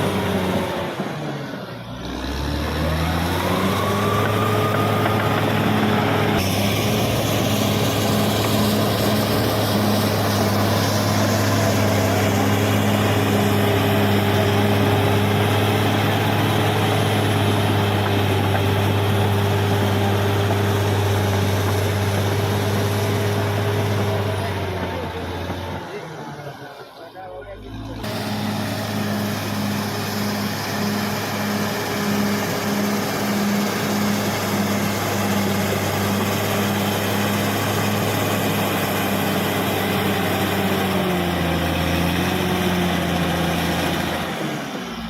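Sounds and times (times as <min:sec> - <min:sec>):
bulldozer diesel engine revving: 0:00.0 - 0:45.0.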